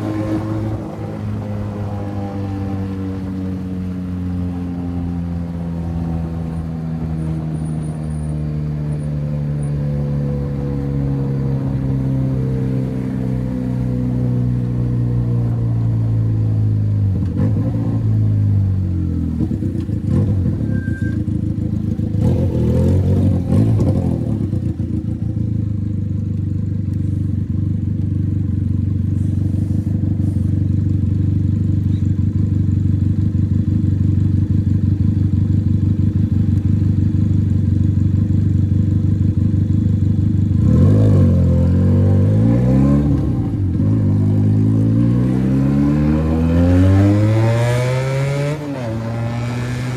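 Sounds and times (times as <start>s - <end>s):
motorcycle engine open exhaust: 18.0s - 49.9s.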